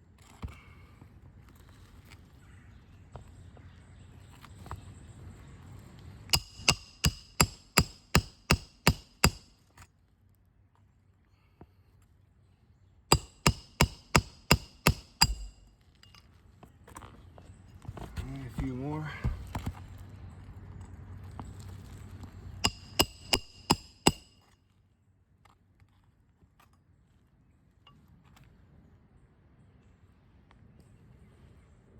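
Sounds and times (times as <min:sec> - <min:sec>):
hammer striking metal: 0:06.3 - 0:09.5, 0:13.1 - 0:15.7, 0:22.6 - 0:24.4.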